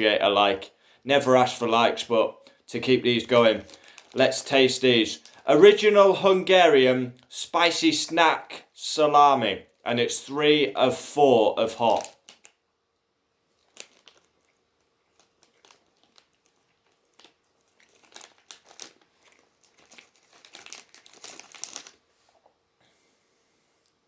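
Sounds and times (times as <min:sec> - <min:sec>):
plastic packaging crinkling and tearing: 0:03.2 - 0:06.0, 0:11.7 - 0:12.6, 0:13.5 - 0:22.1.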